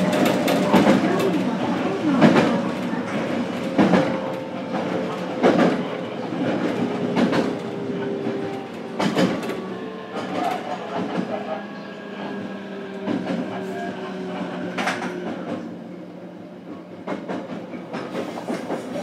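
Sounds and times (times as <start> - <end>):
wheels clacking over rail joints: 0.0 - 11.6.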